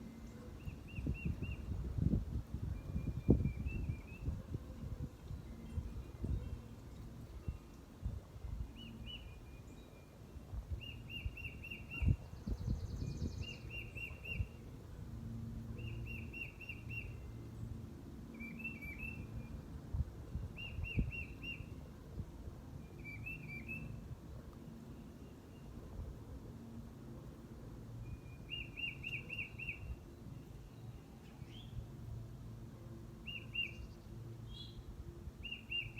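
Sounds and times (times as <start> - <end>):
songbird whistling song: 0.0 - 4.4, 8.4 - 14.6, 15.8 - 17.6, 18.3 - 19.6, 20.5 - 21.8, 22.8 - 24.0, 28.0 - 31.8, 33.2 - 35.9.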